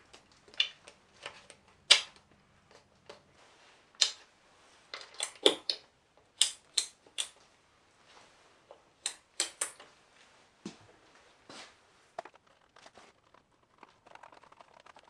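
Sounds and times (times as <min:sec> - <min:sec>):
hand tools clicking and knocking: 0:00.6 - 0:02.2, 0:05.0 - 0:05.8, 0:06.4 - 0:07.4, 0:09.1 - 0:09.8.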